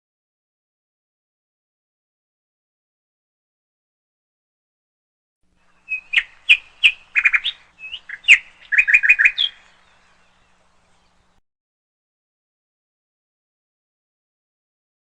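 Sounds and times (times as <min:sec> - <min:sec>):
canary chirping: 0:05.7 - 0:10.3.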